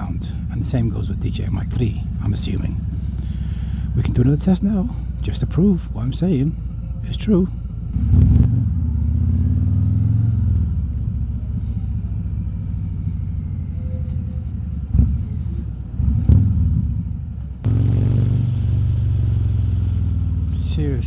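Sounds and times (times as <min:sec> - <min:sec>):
motorcycle engine rumbling: 0:00.0 - 0:21.0.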